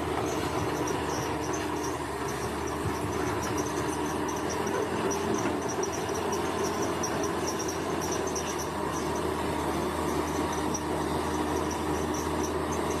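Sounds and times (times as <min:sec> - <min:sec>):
bulldozer diesel engine drone: 0:00.0 - 0:13.0
insects chirping: 0:00.3 - 0:09.2.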